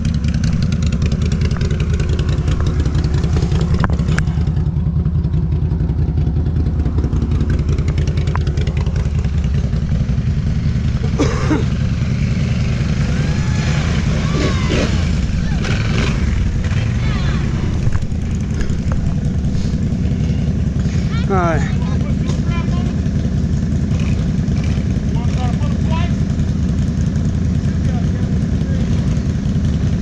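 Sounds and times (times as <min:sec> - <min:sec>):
atv engine idling: 0:00.0 - 0:30.0.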